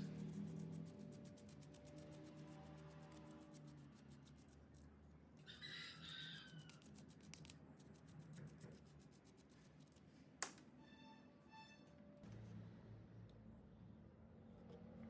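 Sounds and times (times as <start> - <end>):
chicken calling faintly: 5.4 - 6.9.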